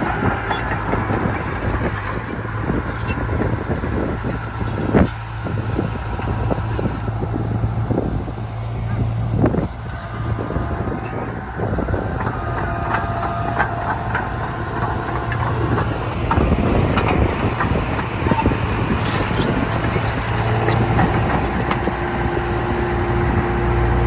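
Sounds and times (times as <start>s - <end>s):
diesel earthmoving machinery running: 0.0s - 24.0s
metallic clanks and knocks: 11.0s - 22.0s.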